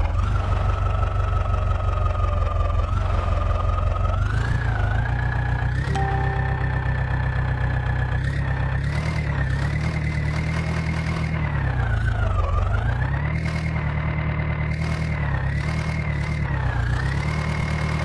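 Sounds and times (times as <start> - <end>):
high engine whine: 5.9 - 9.4
diesel engine revving: 8.2 - 18.0.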